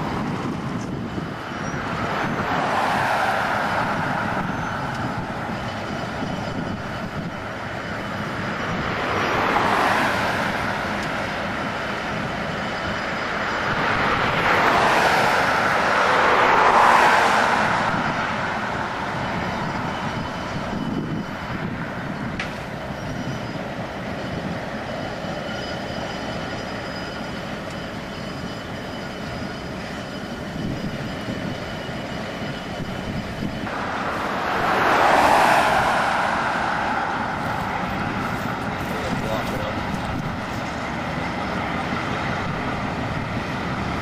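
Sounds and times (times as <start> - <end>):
diesel locomotives rumbling past: 0.0 - 44.0
car passing by: 1.8 - 5.6, 8.5 - 11.1, 13.4 - 20.3, 33.6 - 40.8.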